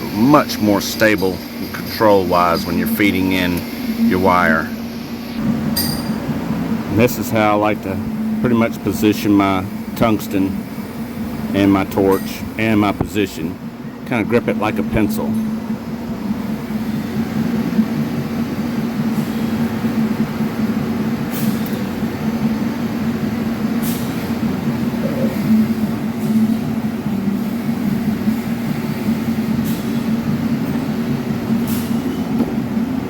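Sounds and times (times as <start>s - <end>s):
machine hum: 0.0s - 33.0s.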